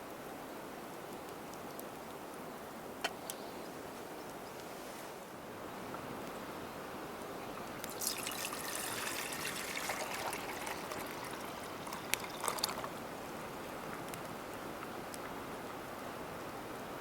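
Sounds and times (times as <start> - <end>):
water pouring: 7.8 - 13.0.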